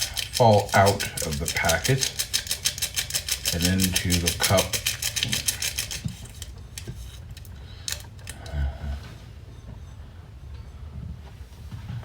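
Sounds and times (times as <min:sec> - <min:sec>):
sugar packet rattling: 0:00.0 - 0:08.4.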